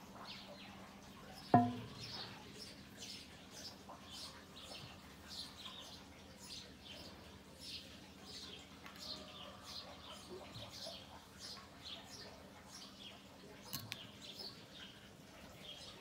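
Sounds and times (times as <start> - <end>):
low steady hum: 0.5 - 8.8.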